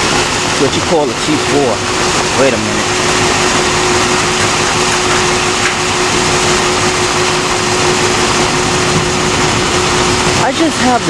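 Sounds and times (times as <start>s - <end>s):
storm wind rushing: 7.2s - 11.0s.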